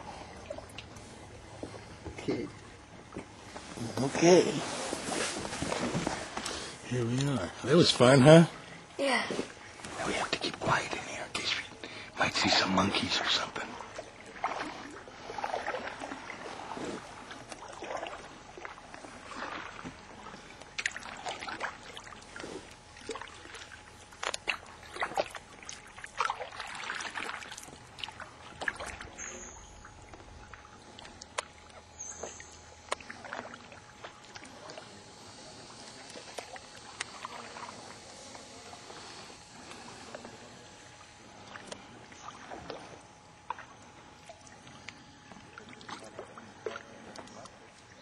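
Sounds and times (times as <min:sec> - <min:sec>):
paddle splashing in water: 0:13.0 - 0:48.0.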